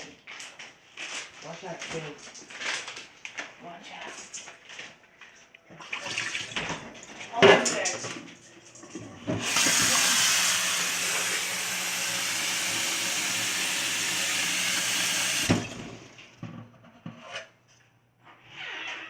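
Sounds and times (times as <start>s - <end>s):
water running from a tap: 9.4s - 16.2s.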